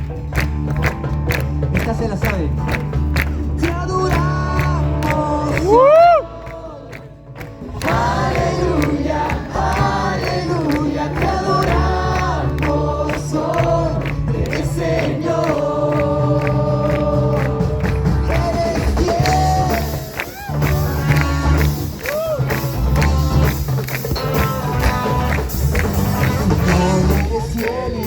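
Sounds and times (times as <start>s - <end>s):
music with steady bass line: 0.0s - 28.0s
group of voices singing: 3.6s - 22.3s, 25.7s - 28.0s.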